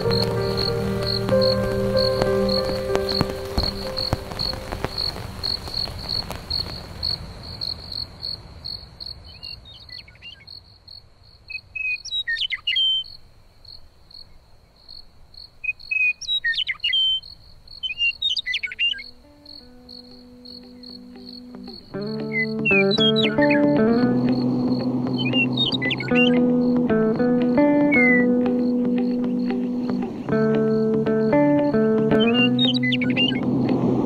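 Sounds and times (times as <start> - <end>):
sweeping bird chirps: 0.0 - 5.2, 11.5 - 13.2, 15.6 - 30.1, 30.7 - 33.4
rain rushing: 0.0 - 8.0, 19.2 - 34.0
crickets chirping: 0.0 - 34.0.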